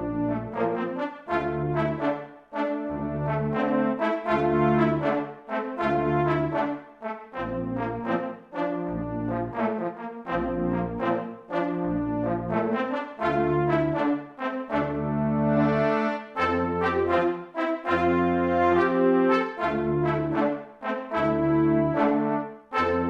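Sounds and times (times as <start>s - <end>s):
synthesizer brass patch: 0.0s - 23.0s.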